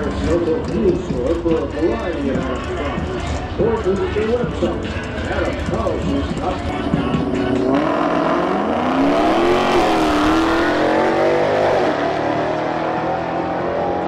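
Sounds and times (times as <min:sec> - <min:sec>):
car engine at full throttle: 0:00.0 - 0:14.0.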